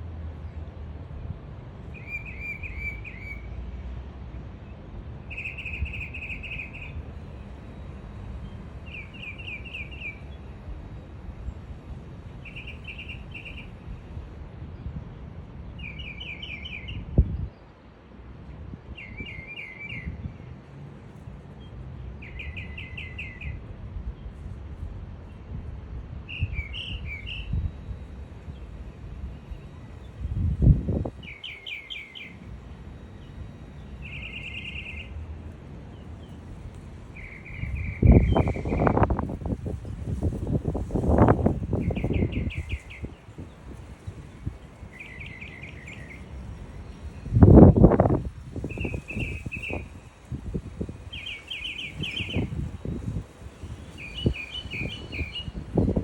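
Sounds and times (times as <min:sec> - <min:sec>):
songbird singing: 0:01.8 - 0:03.6, 0:04.6 - 0:10.8, 0:12.2 - 0:15.0, 0:15.6 - 0:17.9, 0:18.7 - 0:20.5, 0:21.5 - 0:24.6, 0:26.1 - 0:56.0
small birds chirping: 0:29.5 - 0:35.2, 0:40.1 - 0:47.3, 0:47.9 - 0:49.9, 0:50.8 - 0:56.0.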